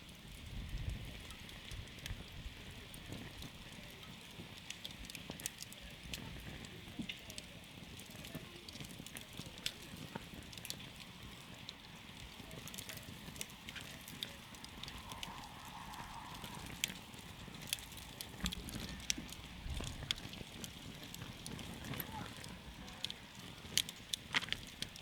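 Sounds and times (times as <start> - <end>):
campfire crackling and popping: 0.0 - 25.0
flames rushing: 0.0 - 25.0.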